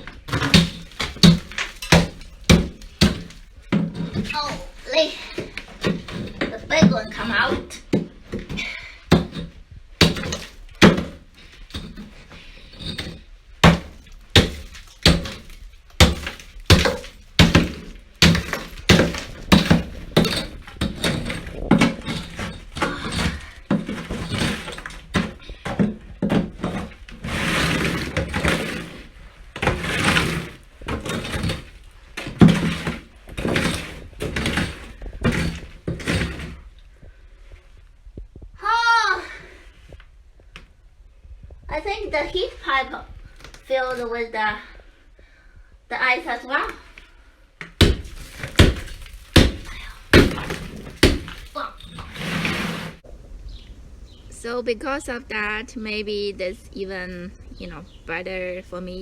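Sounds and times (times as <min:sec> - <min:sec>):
ice knocking and cracking: 0:00.0 - 0:36.7, 0:47.6 - 0:52.2
ice chunks shattering: 0:47.8 - 0:52.0
ice crunching: 0:47.9 - 0:53.0.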